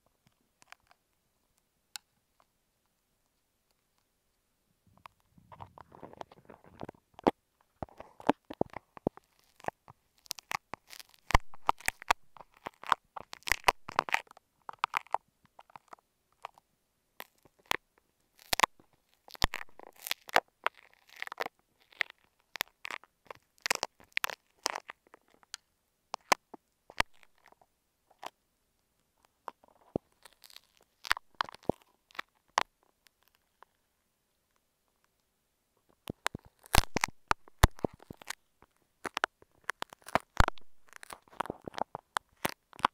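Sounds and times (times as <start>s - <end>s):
crunching and clicking of crushed eggs: 5.0s - 16.6s, 17.2s - 17.8s, 18.4s - 28.4s, 29.2s - 33.7s, 35.9s - 42.9s.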